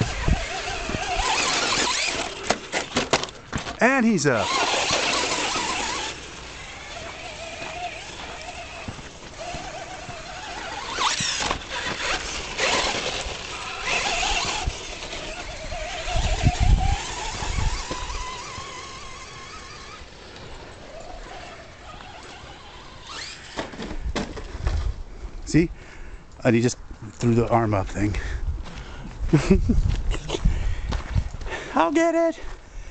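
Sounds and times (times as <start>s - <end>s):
electric motor whine: 0.0s - 3.0s, 4.2s - 23.9s
low rumbles: 0.0s - 23.0s
tyre noise on dirt: 0.0s - 25.4s, 27.2s - 31.6s.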